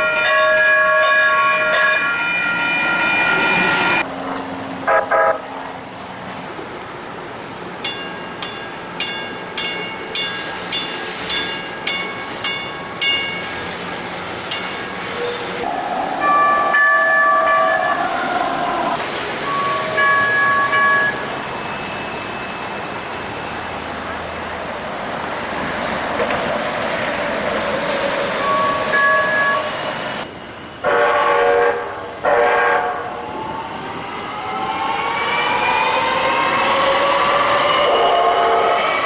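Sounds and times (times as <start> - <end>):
train horn blasts: 0.0 - 4.0, 4.9 - 5.5, 15.6 - 18.2, 19.5 - 21.2, 30.8 - 33.1, 37.8 - 39.0
running train noise: 0.0 - 39.0.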